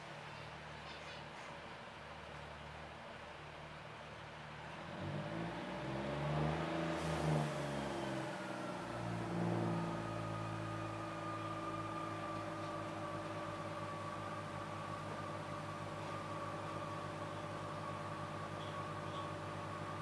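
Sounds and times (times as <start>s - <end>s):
diesel train engine revving: 4.5s - 20.0s.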